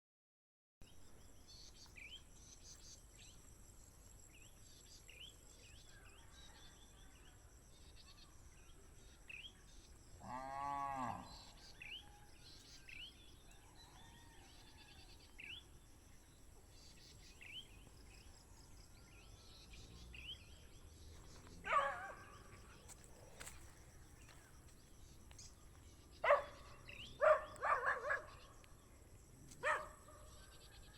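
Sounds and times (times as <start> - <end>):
small birds chirping: 7.8 - 30.9.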